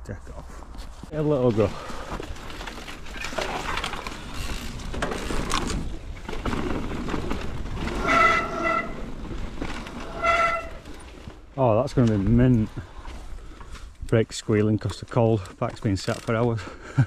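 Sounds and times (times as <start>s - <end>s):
bike rolling over dirt trail: 1.2s - 13.8s
high brake squeal: 10.2s - 10.8s.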